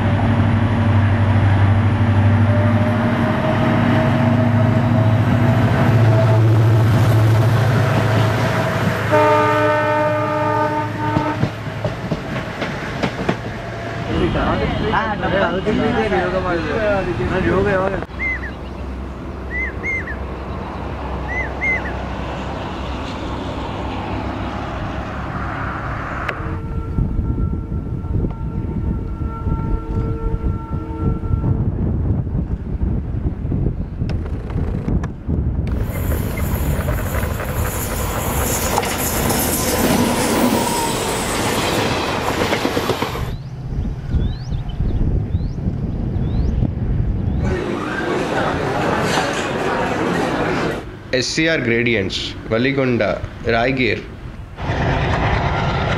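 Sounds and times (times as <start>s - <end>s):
train running: 0.0s - 55.9s
bird chirping: 18.1s - 22.0s, 43.3s - 47.4s
low rumble: 54.4s - 55.9s.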